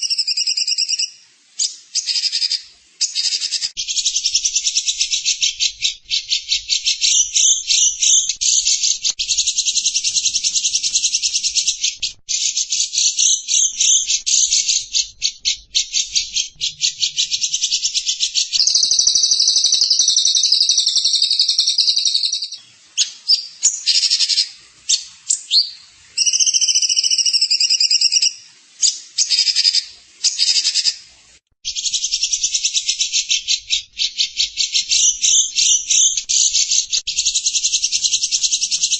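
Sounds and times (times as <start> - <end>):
songbird buzzy trill: 0.0 - 31.0.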